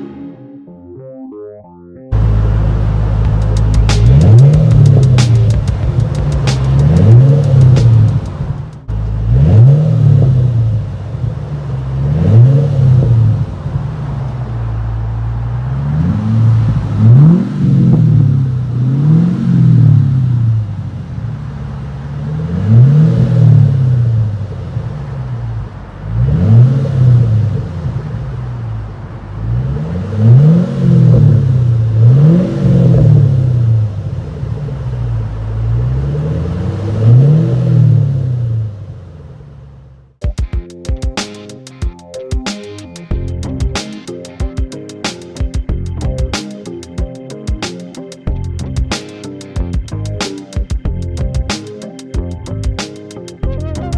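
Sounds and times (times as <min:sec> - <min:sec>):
car engine revving: 0:02.1 - 0:40.2.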